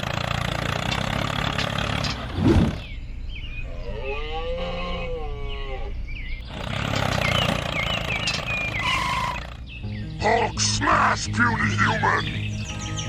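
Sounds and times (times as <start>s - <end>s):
mechanical running noise: 0.0s - 3.5s, 6.0s - 9.9s
roar-like cry: 3.6s - 7.8s, 8.5s - 9.7s.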